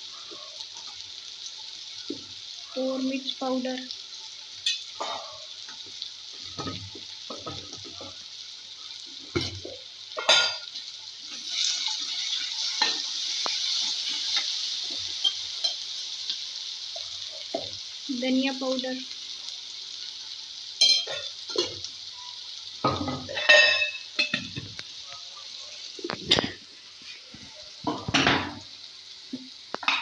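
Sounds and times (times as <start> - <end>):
vegetables sizzling in hot oil: 0.0 - 30.0.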